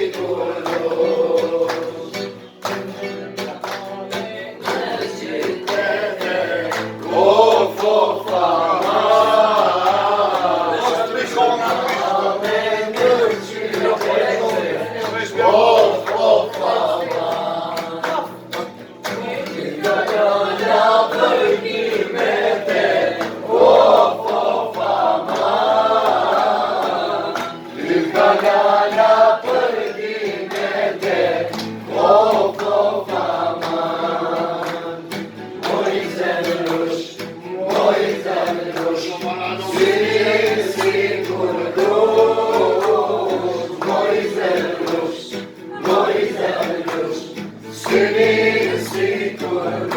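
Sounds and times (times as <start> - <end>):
group of voices singing: 0.0 - 49.9.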